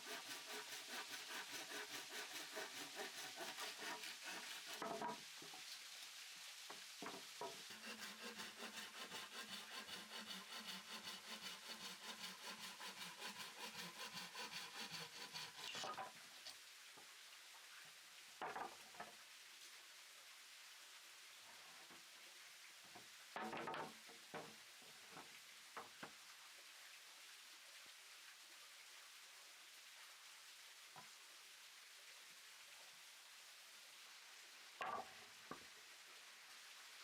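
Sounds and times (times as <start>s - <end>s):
hand saw cutting wood: 0.0s - 5.2s, 7.0s - 16.2s.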